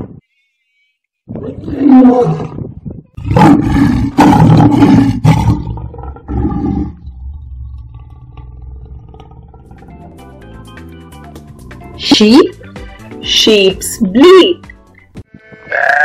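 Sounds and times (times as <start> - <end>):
lion roaring: 1.3 - 10.1.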